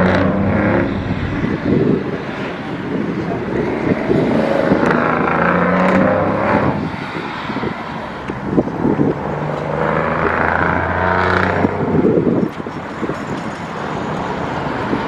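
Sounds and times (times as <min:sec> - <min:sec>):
vehicle engine running: 0:00.0 - 0:05.6.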